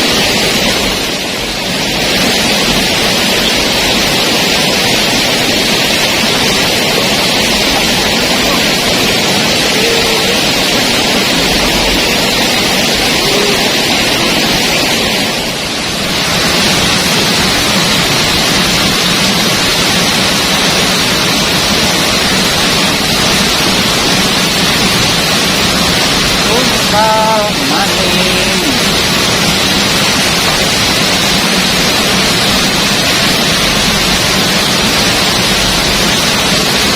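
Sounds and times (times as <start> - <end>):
waterfall rushing: 0.0 - 36.9.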